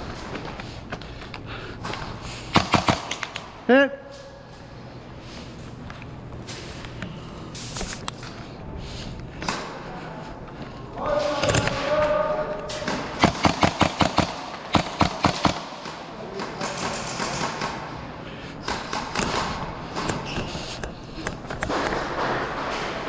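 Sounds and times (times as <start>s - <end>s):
airsoft gun shots: 2.5s - 3.5s, 12.8s - 16.0s.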